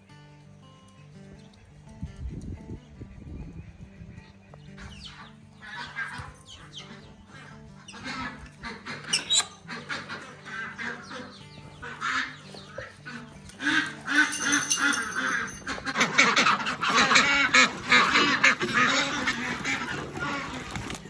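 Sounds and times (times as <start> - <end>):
ducks quacking: 4.8 - 21.0.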